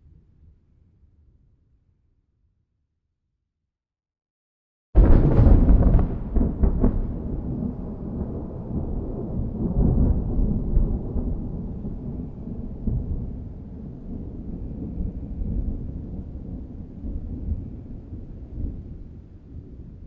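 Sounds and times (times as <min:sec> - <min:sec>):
thunder crackling and rumbling: 0:05.0 - 0:20.0.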